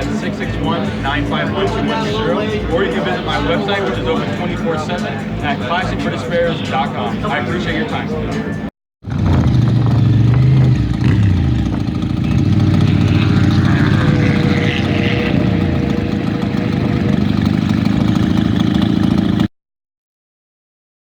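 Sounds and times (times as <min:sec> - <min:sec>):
motorcycle engine running loudly: 0:09.0 - 0:19.5.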